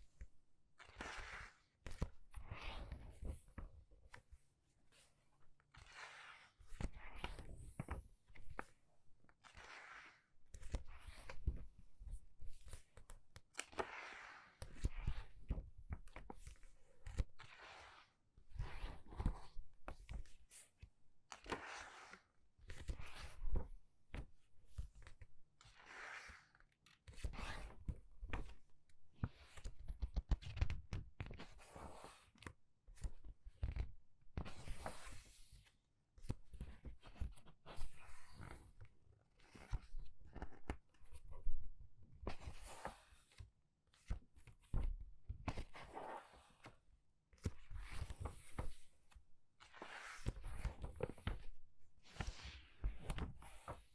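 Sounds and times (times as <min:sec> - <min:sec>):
book pages turning: 0:12.6 - 0:15.6, 0:39.4 - 0:41.5, 0:47.4 - 0:48.8, 0:49.8 - 0:53.9.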